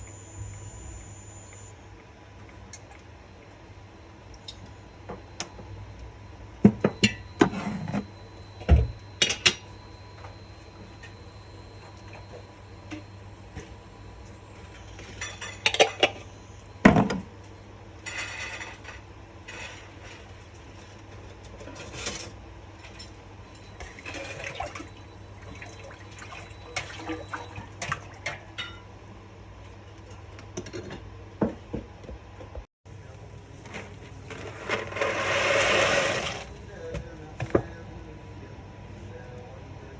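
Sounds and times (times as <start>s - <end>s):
steady low hum: 0.0s - 39.9s
pots and pans clinking: 14.8s - 16.3s, 21.2s - 28.9s.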